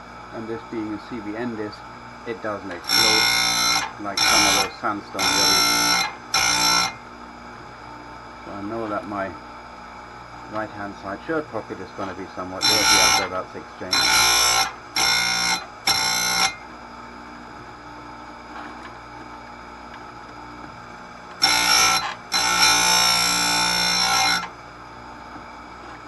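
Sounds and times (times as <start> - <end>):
grinder motor humming: 0.0 - 26.0
grinder disc whining on chain teeth: 2.3 - 7.0, 12.6 - 16.6, 21.3 - 24.5.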